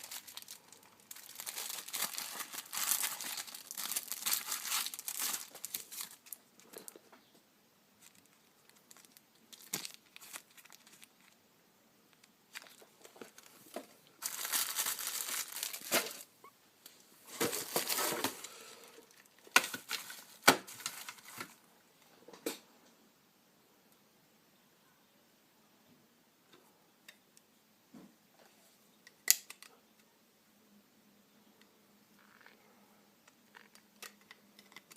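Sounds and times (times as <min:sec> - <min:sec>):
packaging crinkling and tearing: 0:00.0 - 0:06.8, 0:08.0 - 0:11.4, 0:12.1 - 0:13.6, 0:14.2 - 0:16.3, 0:17.3 - 0:21.6.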